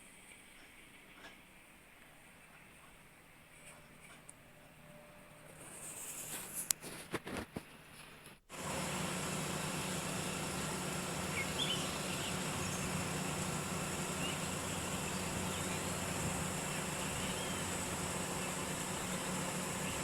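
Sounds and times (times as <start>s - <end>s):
outdoor background hum: 0.0s - 20.0s
faint bird chirps: 11.2s - 20.0s.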